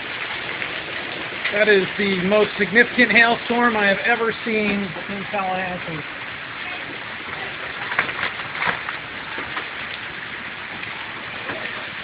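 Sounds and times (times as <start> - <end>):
rain hissing: 0.0 - 12.0
hailstones clicking: 7.7 - 10.1.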